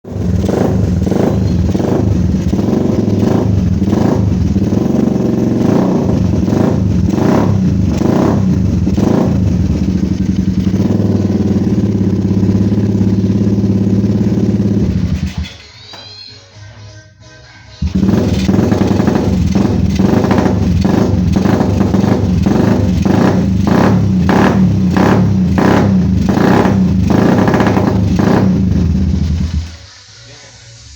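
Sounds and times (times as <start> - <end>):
motorcycle engine revving: 0.0 - 15.6, 17.8 - 29.8.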